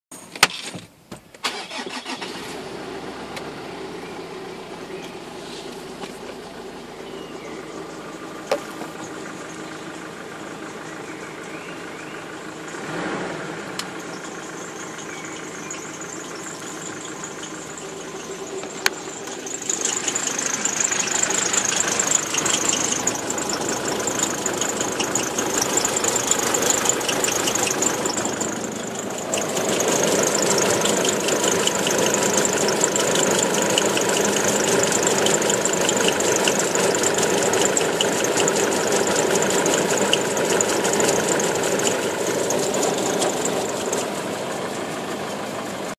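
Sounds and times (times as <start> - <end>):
diesel engine running: 1.4 - 45.9
fast light rattling tick: 14.9 - 45.0.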